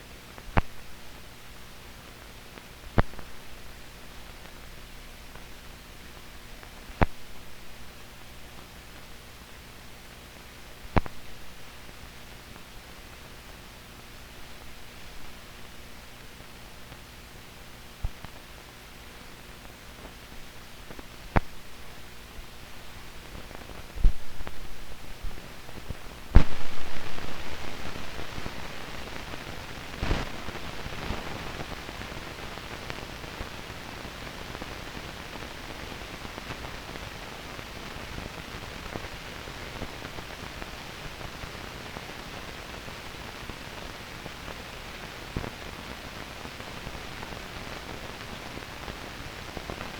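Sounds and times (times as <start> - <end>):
film soundtrack hiss: 0.0 - 49.9
sharp pops: 26.3 - 28.4.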